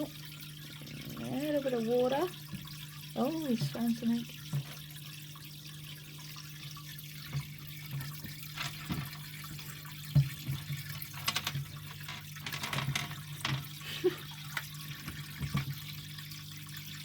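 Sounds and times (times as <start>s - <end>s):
water sloshing and dripping: 0.0s - 17.0s
knocks in a tank: 10.1s - 11.5s.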